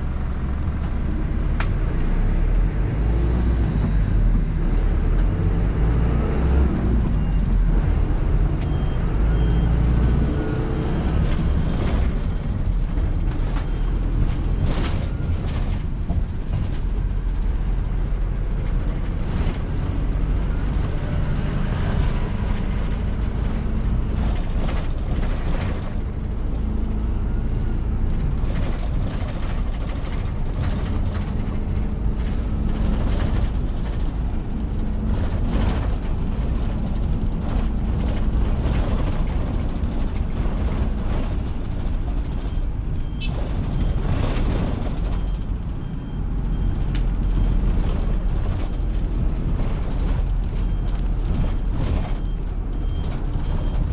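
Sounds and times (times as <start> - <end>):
bus engine and road rumble: 0.0 - 53.9.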